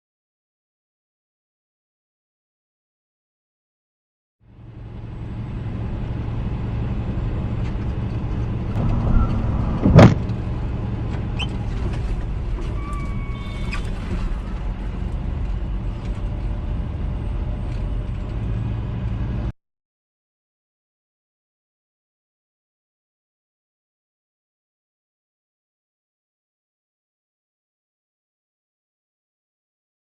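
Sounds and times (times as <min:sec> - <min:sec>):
car engine and road noise: 0:04.4 - 0:19.6
loud collision bang: 0:08.7 - 0:10.9.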